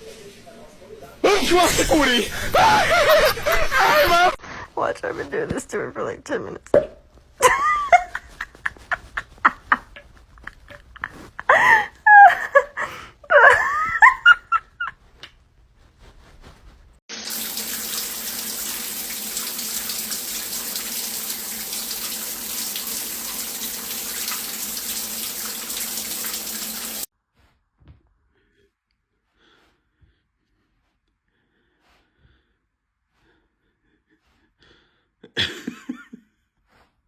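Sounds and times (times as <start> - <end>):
water running from a tap: 17.1 - 27.1.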